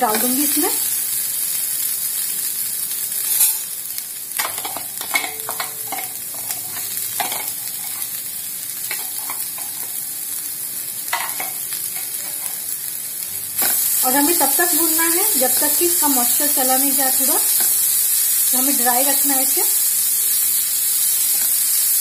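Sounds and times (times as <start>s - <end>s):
vegetables sizzling in oil: 0.0s - 22.0s
vegetables clattering into pan: 4.4s - 8.1s, 8.8s - 10.0s, 11.1s - 12.7s.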